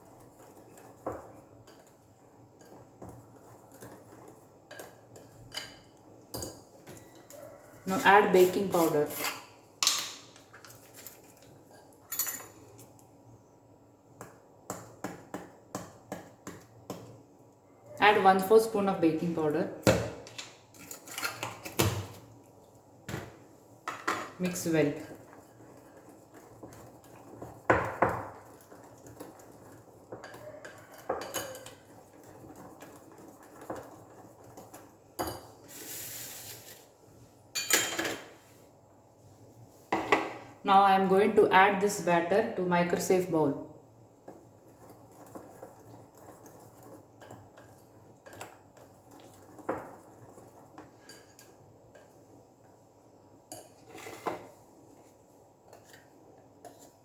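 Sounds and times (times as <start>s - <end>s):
spoon scraping bowl: 0.0s - 9.5s, 24.1s - 36.9s, 44.6s - 52.2s, 53.5s - 55.1s, 55.7s - 57.0s
utensil scraping along bowl: 7.0s - 9.5s, 44.4s - 52.2s.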